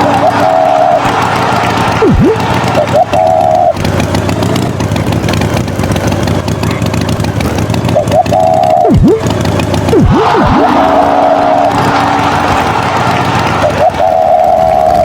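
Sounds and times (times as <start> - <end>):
short high tones: 0.0 - 3.8, 8.0 - 9.2, 9.9 - 15.0
swooping gliding tones: 0.0 - 3.9, 7.9 - 15.0
engine running: 0.0 - 15.0.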